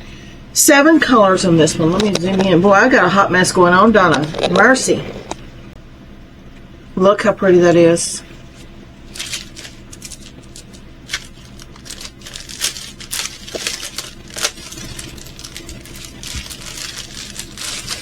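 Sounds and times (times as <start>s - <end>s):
plastic packaging crinkling: 1.8s - 2.8s, 4.1s - 5.4s, 9.1s - 18.0s.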